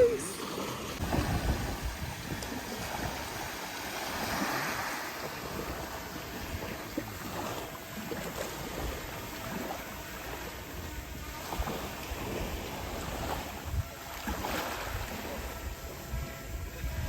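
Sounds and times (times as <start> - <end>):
ocean surf rushing: 0.0 - 7.6
wind gusting on microphone: 0.0 - 9.8, 10.4 - 17.0.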